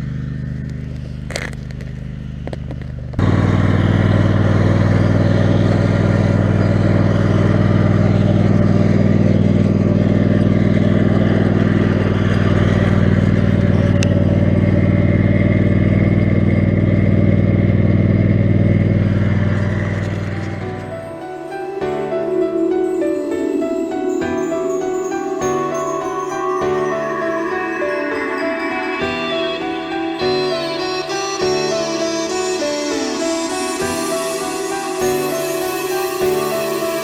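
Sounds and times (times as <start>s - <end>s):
lawn mower engine running: 0.0s - 21.2s.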